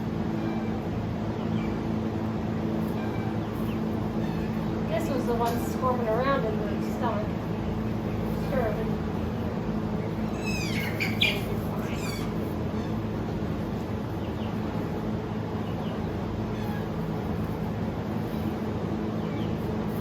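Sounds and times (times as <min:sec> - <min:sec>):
goat kid crying: 0:10.2 - 0:13.1.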